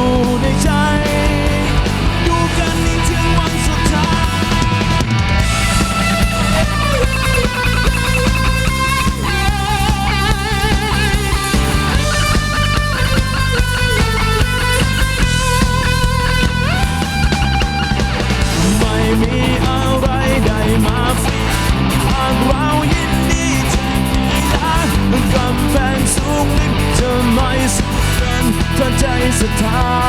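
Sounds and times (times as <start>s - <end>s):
bass guitar: 0.0s - 30.0s
drums: 0.0s - 30.0s
lead electric guitar: 0.0s - 30.0s.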